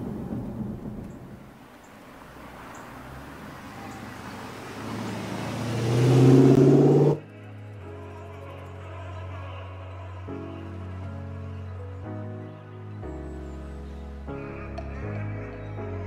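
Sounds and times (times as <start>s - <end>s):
car engine driving past: 0.0s - 7.2s
soft background music: 6.2s - 16.0s.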